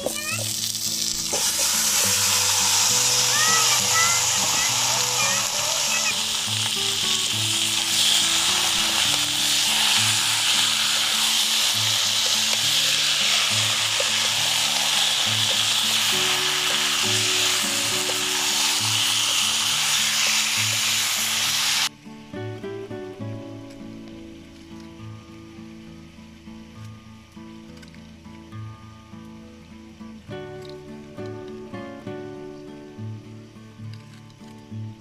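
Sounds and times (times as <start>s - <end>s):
food sizzling in a pan: 0.0s - 21.9s
soft background music: 0.0s - 35.0s.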